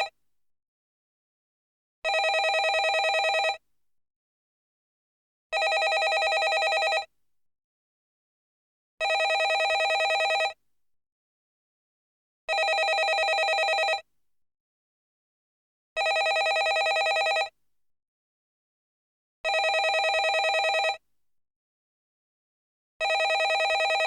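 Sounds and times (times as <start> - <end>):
landline telephone ringing: 2.1 - 3.6, 5.6 - 7.1, 9.0 - 10.6, 12.5 - 14.0, 16.0 - 17.5, 19.5 - 21.0, 23.0 - 24.0.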